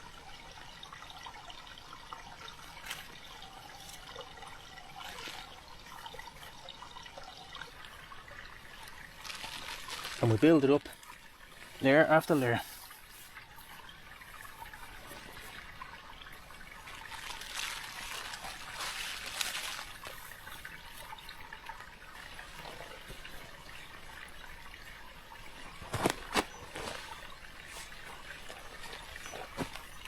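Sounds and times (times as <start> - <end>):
moss and sticks rustling: 5.0 - 5.6, 8.7 - 15.6, 16.7 - 24.2, 25.5 - 30.0.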